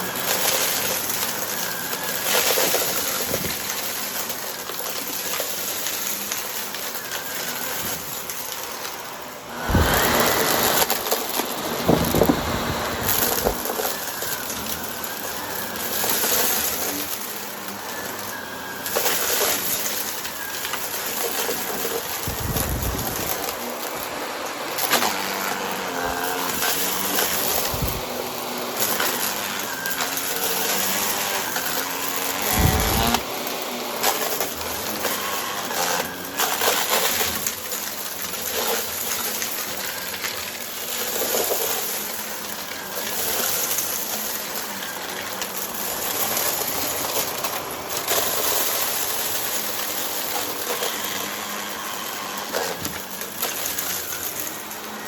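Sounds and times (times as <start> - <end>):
vacuum cleaner running: 0.0 - 55.0
clicks of debris: 0.1 - 24.2
dull thumps: 11.6 - 13.6.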